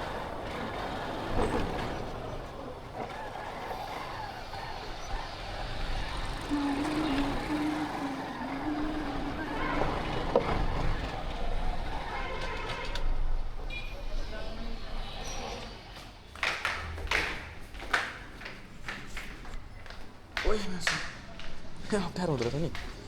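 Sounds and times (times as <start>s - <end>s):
road traffic rumble: 0.0s - 16.3s.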